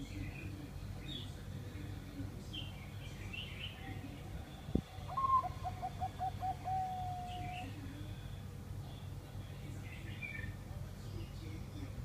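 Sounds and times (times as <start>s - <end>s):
dove cooing: 4.9s - 7.8s.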